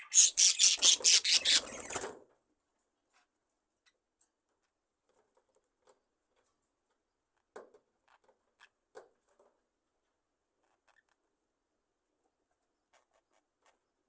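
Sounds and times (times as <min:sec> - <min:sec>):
small clicks and rustles: 0:01.9 - 0:11.3.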